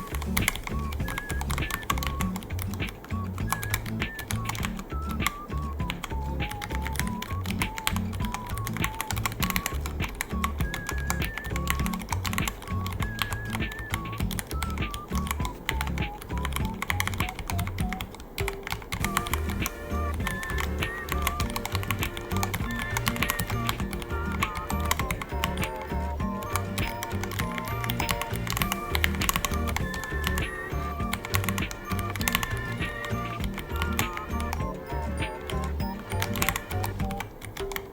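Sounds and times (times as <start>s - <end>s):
background music with bass: 0.0s - 18.1s, 19.0s - 37.9s
mechanical keyboard typing: 0.0s - 37.9s.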